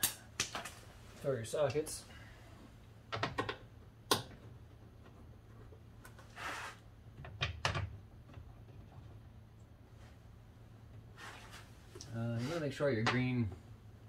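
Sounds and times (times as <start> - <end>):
short scraping rustle: 6.2 - 6.8.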